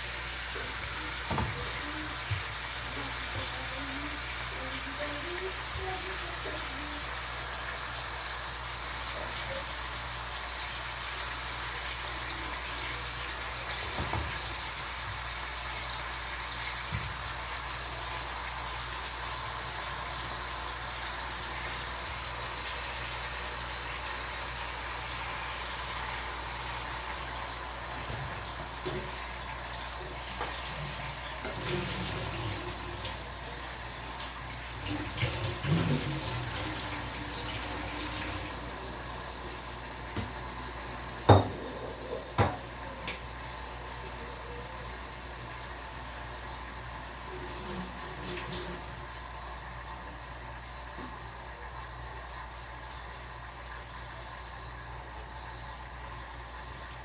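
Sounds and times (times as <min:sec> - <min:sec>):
meat sizzling in a pan: 0:00.0 - 0:48.3.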